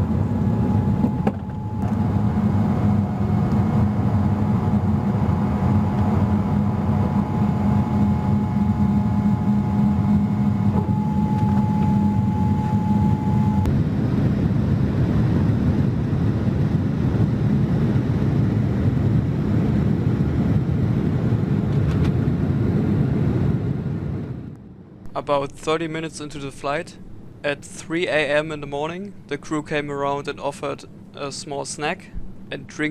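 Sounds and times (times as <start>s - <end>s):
thin engine whine: 0.0s - 16.4s
jet engine rumble in cabin: 0.0s - 25.0s.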